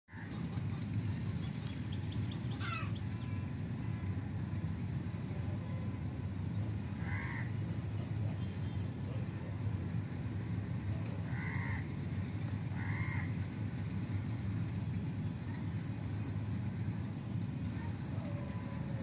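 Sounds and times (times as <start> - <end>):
bird calling: 0.1 - 3.9, 5.4 - 9.8, 10.6 - 14.2
low steady rumble: 0.1 - 19.0.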